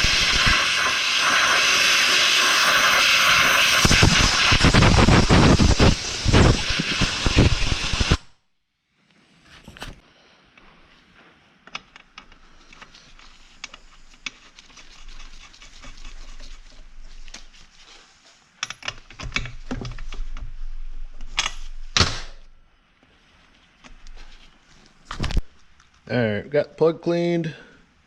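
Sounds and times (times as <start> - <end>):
scraping hiss: 0.0 - 8.3, 12.0 - 18.8.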